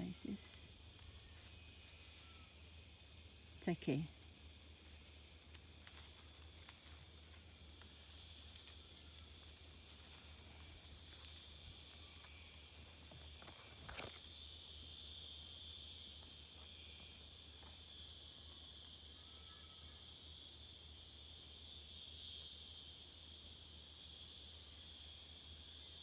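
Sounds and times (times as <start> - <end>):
faint ticks: 0.5 - 2.8, 4.1 - 14.4.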